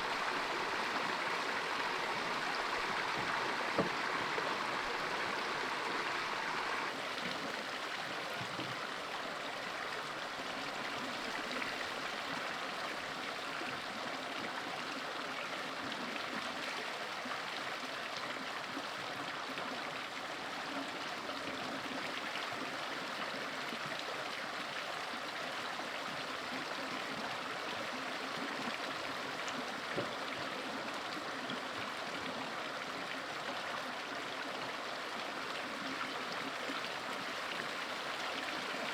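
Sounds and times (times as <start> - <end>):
water rushing: 0.0 - 7.1, 35.6 - 38.9.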